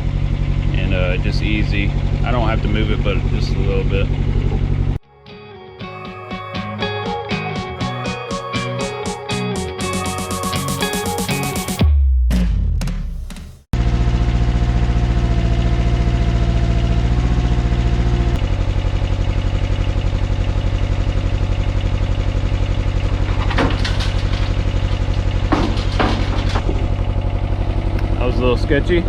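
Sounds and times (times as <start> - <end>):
excavator engine running: 0.0 - 5.0, 13.8 - 29.0.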